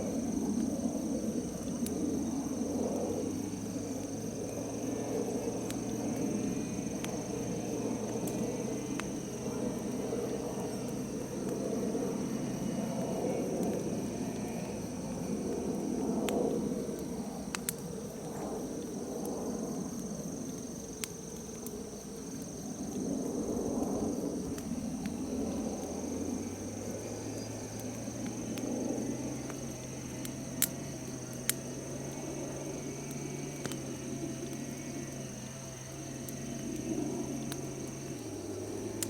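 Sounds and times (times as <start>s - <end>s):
crickets trilling: 0.0s - 39.0s
bonfire rushing: 23.6s - 39.0s
fire popping: 23.8s - 39.0s.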